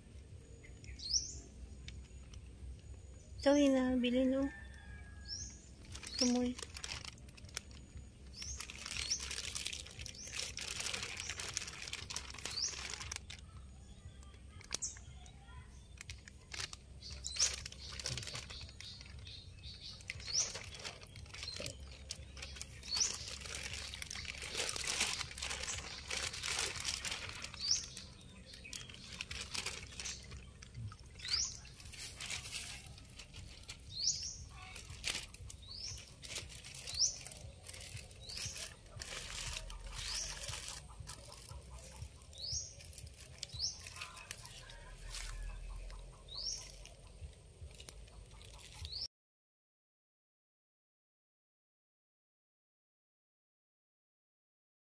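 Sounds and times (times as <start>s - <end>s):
small bird chirping: 0.4s - 49.1s
plastic bag crinkling: 5.8s - 13.6s, 14.2s - 49.0s
water splashing: 20.0s - 33.9s.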